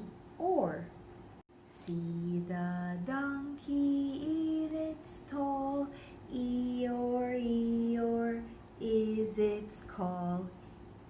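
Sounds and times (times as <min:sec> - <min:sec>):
woman singing: 0:01.7 - 0:10.6
breaths: 0:05.9 - 0:06.3.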